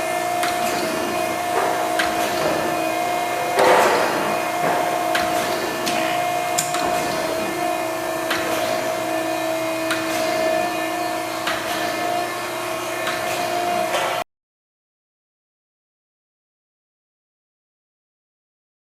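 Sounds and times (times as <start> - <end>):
surface grinder humming: 0.0 - 14.2.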